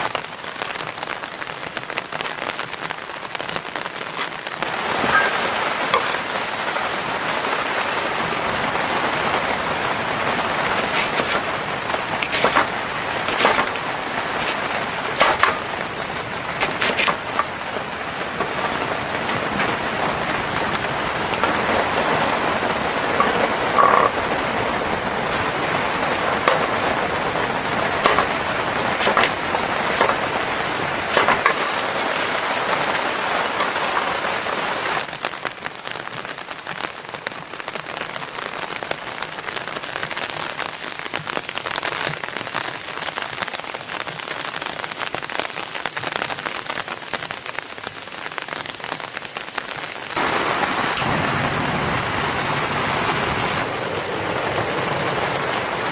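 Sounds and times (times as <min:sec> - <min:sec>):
steady rain falling: 0:00.0 - 0:55.9
sharp pops: 0:10.6 - 0:24.3, 0:25.0 - 0:35.0.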